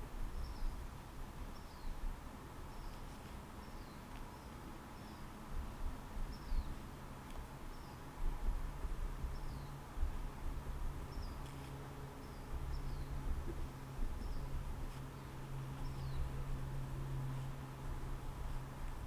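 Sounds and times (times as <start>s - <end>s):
bird chirping: 3.6s - 5.3s, 6.3s - 6.8s, 9.3s - 9.8s, 11.1s - 13.2s, 14.2s - 14.5s, 15.2s - 16.4s
low hum and rumble: 5.5s - 19.0s.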